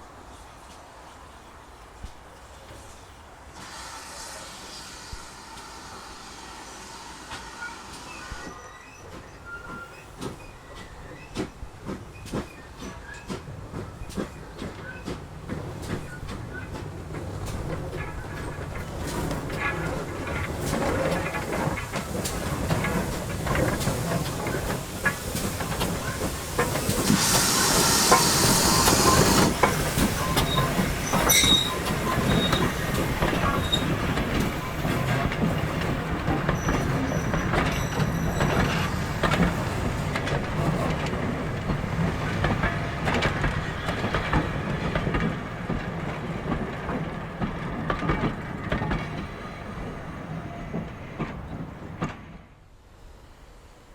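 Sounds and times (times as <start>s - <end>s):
steam train running: 0.0s - 53.9s
steam hissing: 3.5s - 14.9s, 15.8s - 42.9s
wheels squealing: 6.6s - 13.3s, 18.0s - 35.2s, 36.5s - 40.1s.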